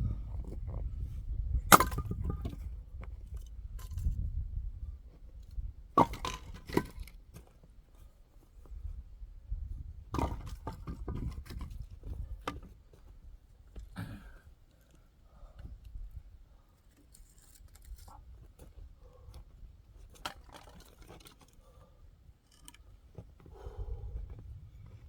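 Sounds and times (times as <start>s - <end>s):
axe chopping firewood: 1.7s - 2.6s.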